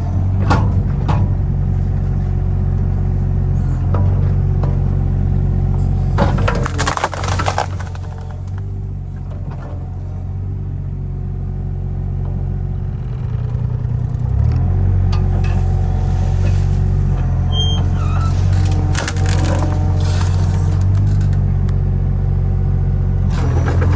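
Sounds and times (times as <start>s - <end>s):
diesel excavator engine running: 0.0s - 23.9s
sharp knocks and rattles: 23.3s - 23.9s.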